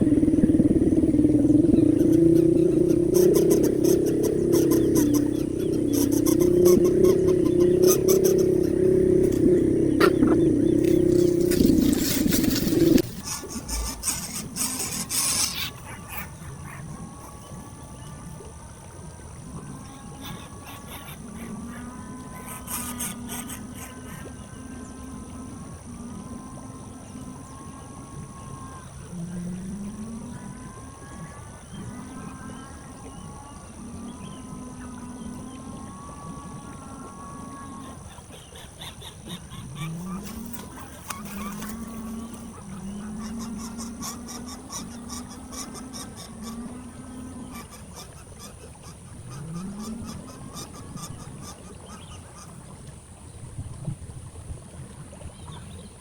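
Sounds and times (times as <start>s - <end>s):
wavering animal calls: 0.0s - 18.4s, 19.6s - 52.5s
engine hum: 0.0s - 32.0s, 39.2s - 48.0s.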